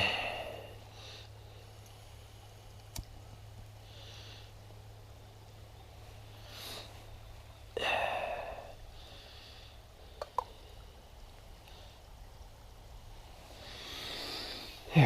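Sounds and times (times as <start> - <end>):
breathy gas rush: 0.0 - 2.6, 3.6 - 12.4, 13.2 - 15.0
lighter clicks: 2.8 - 3.2.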